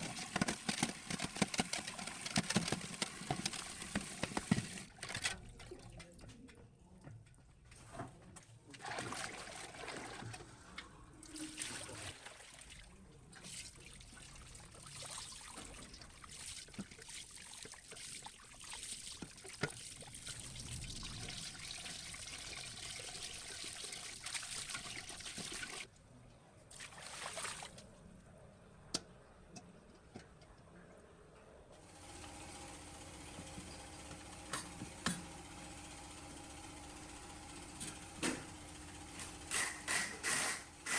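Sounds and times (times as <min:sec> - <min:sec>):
water trickling: 0:13.6 - 0:25.9.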